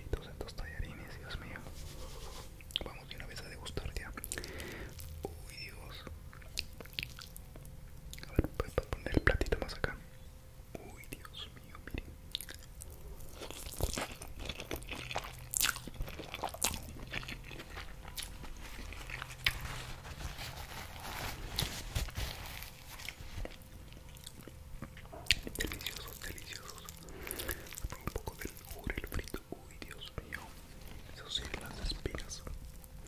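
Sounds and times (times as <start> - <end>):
paper napkin rustling: 1.6 - 2.6, 17.6 - 23.8
chewing with wet mouth clicks: 6.0 - 8.5, 11.2 - 19.6, 23.0 - 30.4.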